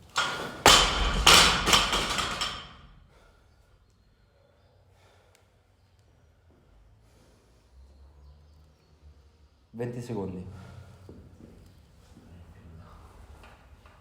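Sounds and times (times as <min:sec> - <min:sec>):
gym equipment thudding on floor: 0:00.0 - 0:02.9.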